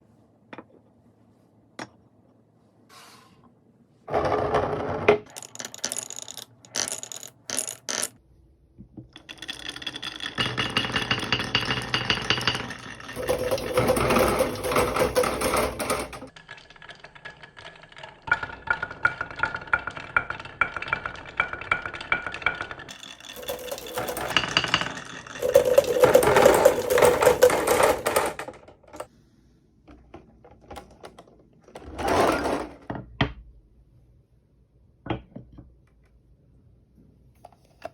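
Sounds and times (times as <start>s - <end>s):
marbles rolling on wooden slopes: 4.1s - 8.2s, 9.1s - 29.1s
marbles clacking: 5.3s - 8.2s, 9.2s - 15.9s, 16.5s - 29.0s.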